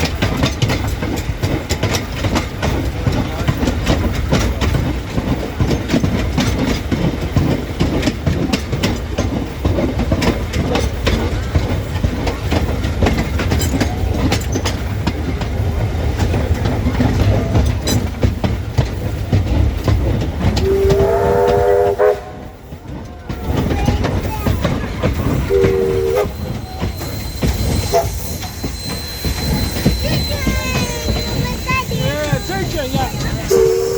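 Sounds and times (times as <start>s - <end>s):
train rumbling: 0.0s - 33.9s
wheels clicking over rail joints: 0.0s - 33.9s
train whistle: 20.6s - 22.6s, 25.5s - 31.4s, 33.4s - 33.9s.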